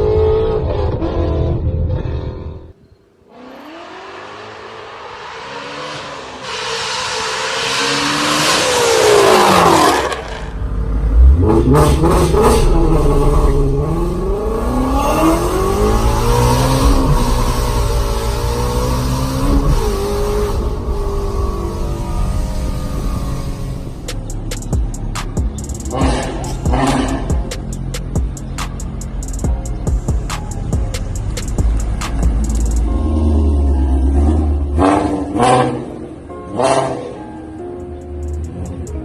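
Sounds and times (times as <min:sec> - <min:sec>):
car engine revving: 0:03.3 - 0:37.3.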